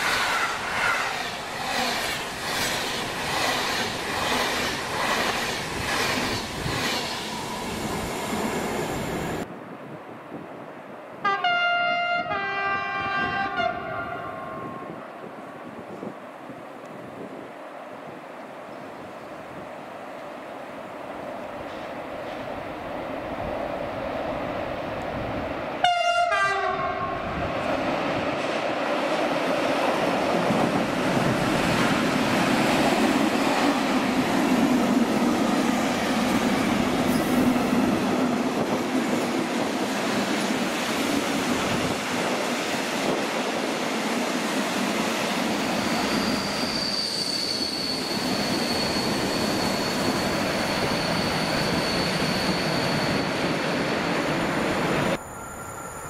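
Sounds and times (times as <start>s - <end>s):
train wheels on rails: 0.0s - 9.5s, 21.1s - 25.8s, 27.2s - 56.0s
train horn blast: 11.2s - 15.0s, 25.8s - 27.4s
high-pitched wheel squeal: 45.7s - 54.2s.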